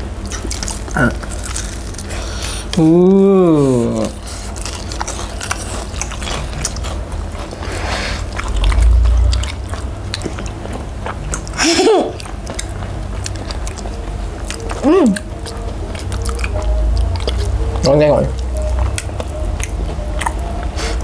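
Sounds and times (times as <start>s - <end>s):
chewing and biting: 0.0s - 2.9s, 3.6s - 21.0s
person humming: 2.8s - 4.2s, 14.7s - 15.4s.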